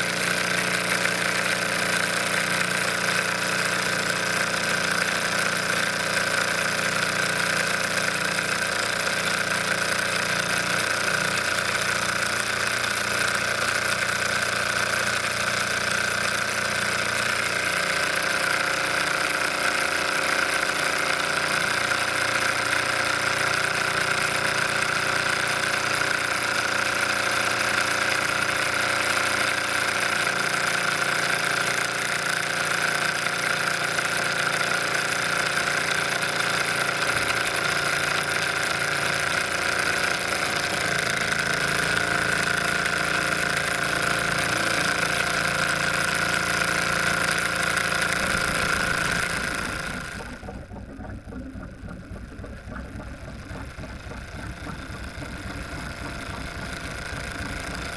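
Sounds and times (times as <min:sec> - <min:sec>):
quiet low hum: 0:48.2 - 0:57.9.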